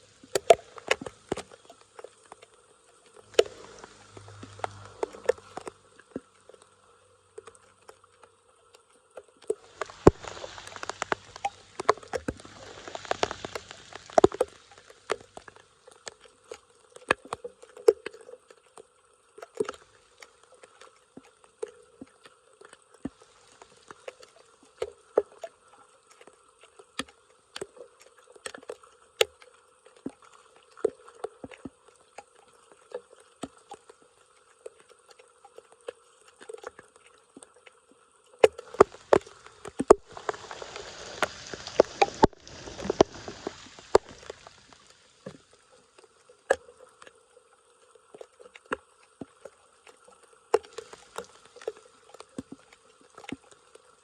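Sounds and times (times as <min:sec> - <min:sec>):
water splashing: 0:00.0 - 0:54.0
water dripping and plinking: 0:00.1 - 0:08.3, 0:09.1 - 0:16.2, 0:38.4 - 0:45.5.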